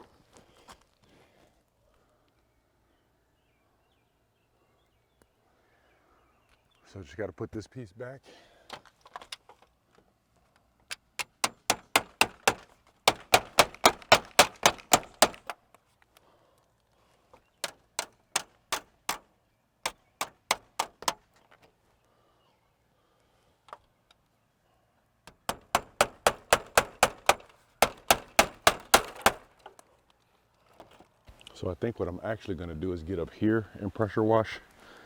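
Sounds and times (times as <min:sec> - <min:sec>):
rapid sharp clicks: 0:10.9 - 0:15.6, 0:19.9 - 0:21.3, 0:25.3 - 0:29.6.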